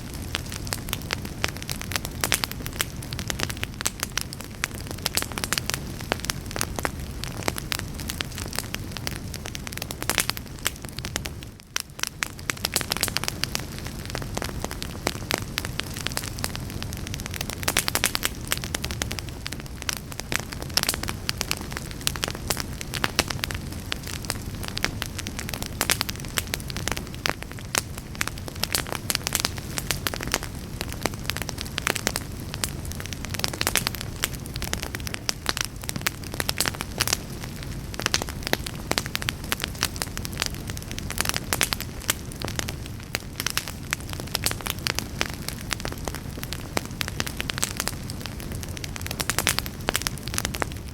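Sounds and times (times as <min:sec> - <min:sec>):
fire crackling and popping: 0:00.0 - 0:50.9
low rush of flame: 0:00.0 - 0:50.9.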